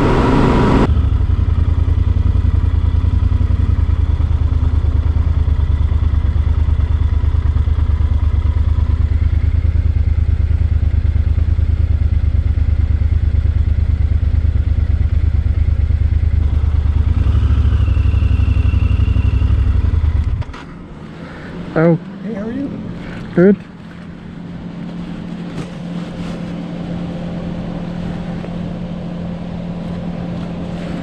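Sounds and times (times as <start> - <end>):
motorcycle engine idling: 0.0 - 20.4.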